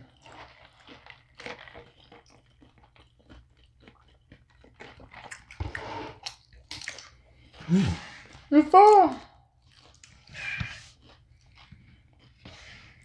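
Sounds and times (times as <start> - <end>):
chewing crunchy food: 0.0 - 13.0.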